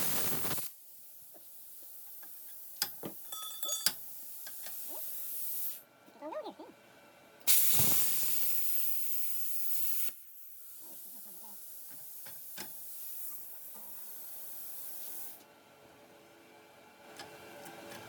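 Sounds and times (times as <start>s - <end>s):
plasma cutter hissing: 0.0s - 2.7s, 7.5s - 15.4s.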